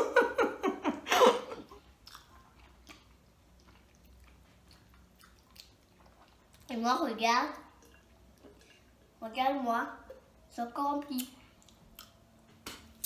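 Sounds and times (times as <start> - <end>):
person laughing: 0.0 - 1.8
chewing pizza: 1.9 - 6.7, 11.2 - 13.0.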